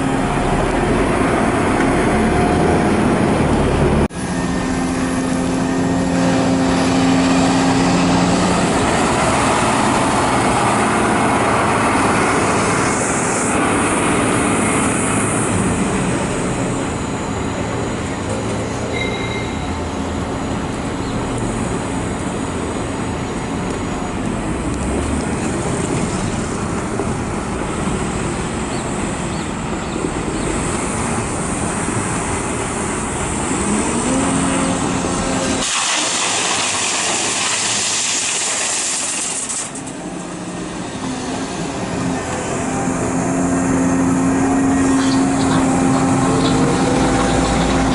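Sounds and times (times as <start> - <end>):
excavator diesel engine under load: 0.0 - 47.9
excavator digging soil: 32.7 - 47.9.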